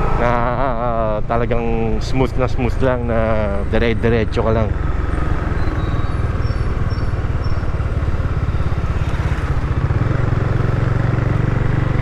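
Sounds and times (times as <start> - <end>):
motorcycle engine running: 4.2 - 12.0.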